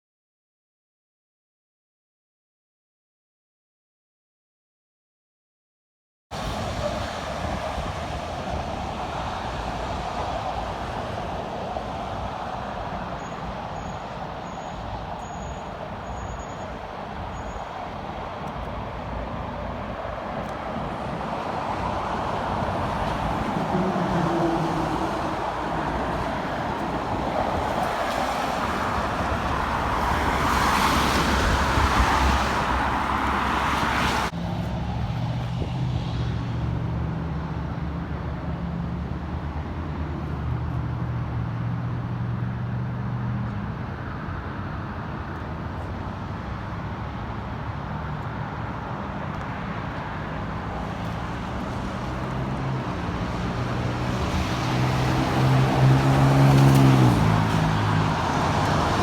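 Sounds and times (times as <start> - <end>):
vehicle approaching: 21.5 - 59.0.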